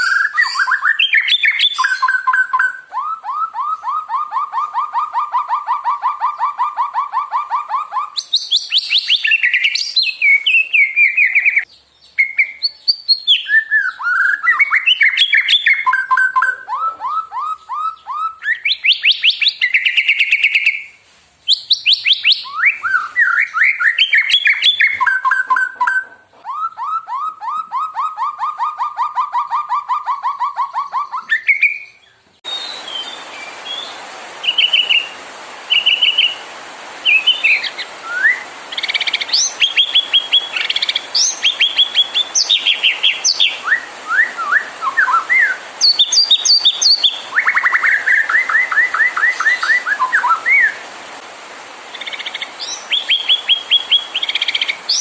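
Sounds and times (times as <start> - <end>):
bird whistled song: 0.0 - 36.4, 37.0 - 50.8, 51.9 - 55.0
short whistles and trills: 37.0 - 50.8.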